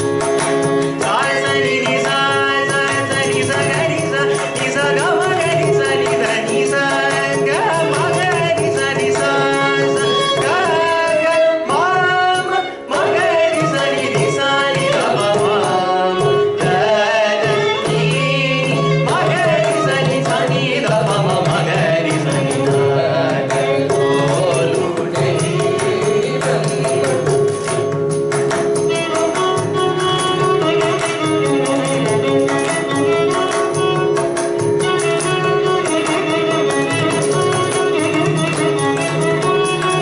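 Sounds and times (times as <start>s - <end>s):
rapid hand drum strokes: 0.0s - 40.0s
violin accompaniment: 0.0s - 40.0s
person singing: 0.9s - 27.6s.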